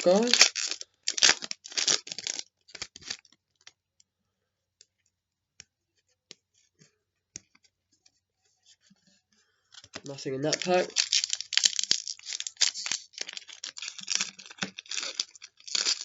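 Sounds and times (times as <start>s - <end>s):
cards rustling: 0.0s - 3.4s, 9.7s - 16.0s
clicks and scrapes of cards: 0.0s - 3.7s, 6.3s - 16.0s.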